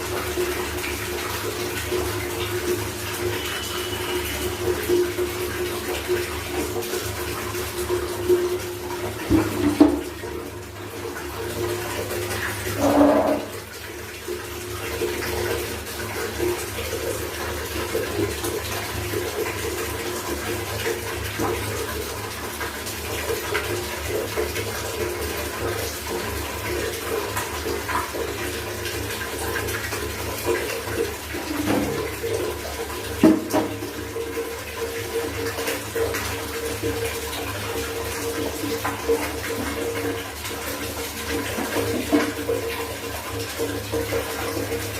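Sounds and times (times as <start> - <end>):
water running and splashing: 0.0 - 44.9
loud splashes or knocks: 9.2 - 10.2, 31.5 - 32.1, 33.2 - 33.8.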